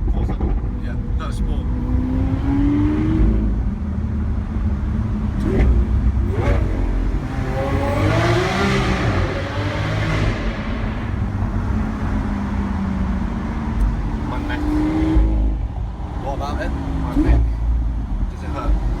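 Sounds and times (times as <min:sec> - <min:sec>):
sports car engine revving: 0:00.0 - 0:19.0.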